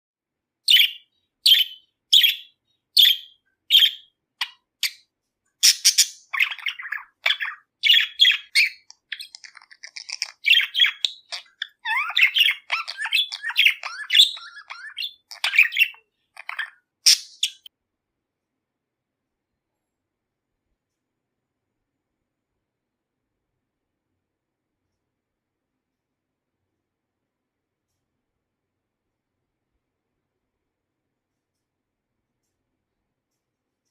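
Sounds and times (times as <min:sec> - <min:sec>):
budgerigar chirping and warbling: 0:00.7 - 0:05.0, 0:05.6 - 0:17.7.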